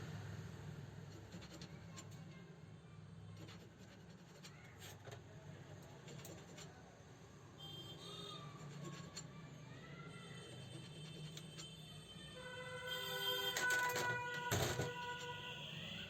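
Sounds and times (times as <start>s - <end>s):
faint light clicks and scratches: 1.1s - 2.5s, 3.3s - 7.0s, 8.2s - 9.6s, 10.2s - 12.1s, 13.2s - 15.5s.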